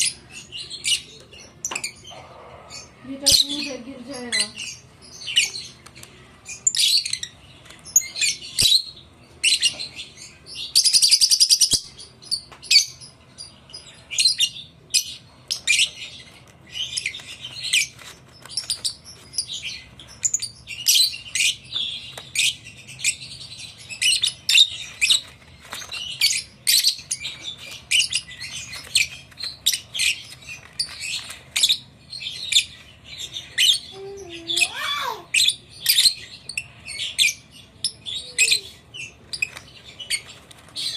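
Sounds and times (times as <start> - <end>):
lovebirds chirping: 0.0 - 40.9
harsh bird call: 34.0 - 35.3.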